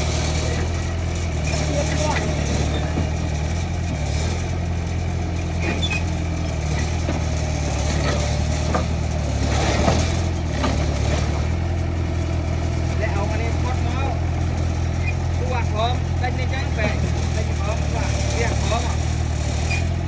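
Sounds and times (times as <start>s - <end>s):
diesel engine running: 0.0s - 20.0s
short metallic knocks: 6.7s - 11.0s.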